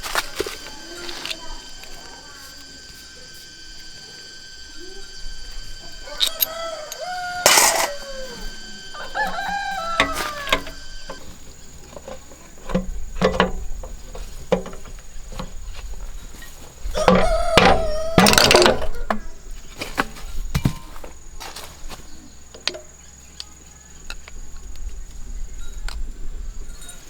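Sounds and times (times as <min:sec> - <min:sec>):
rooster crowing: 0:05.6 - 0:11.8, 0:16.9 - 0:19.4.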